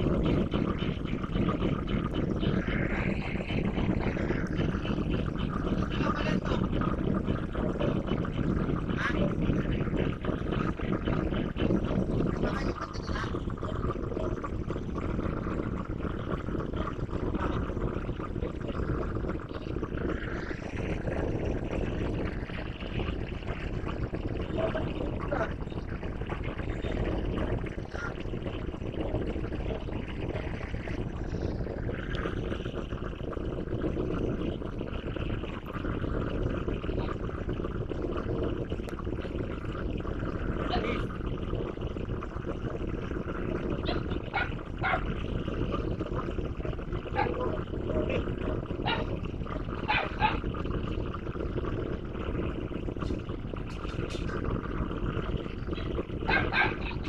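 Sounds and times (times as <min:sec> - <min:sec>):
dog barking: 0:43.9 - 0:45.0, 0:49.9 - 0:50.4, 0:56.3 - 0:57.0.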